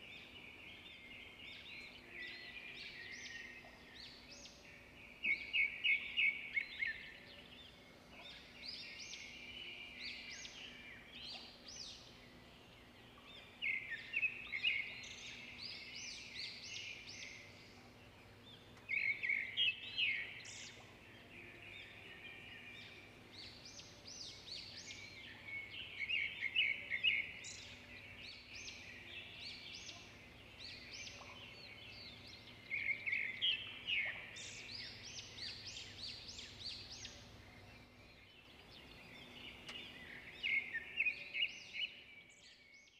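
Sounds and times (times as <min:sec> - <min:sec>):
faint steady hum: 0:00.0 - 0:42.4
small birds chirping: 0:00.0 - 0:42.9.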